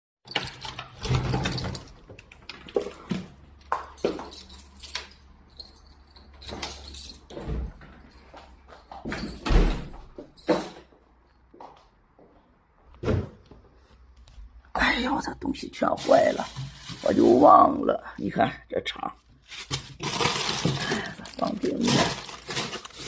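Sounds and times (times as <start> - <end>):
door opening and shutting: 0.3 - 3.3, 6.4 - 8.0, 9.1 - 10.8.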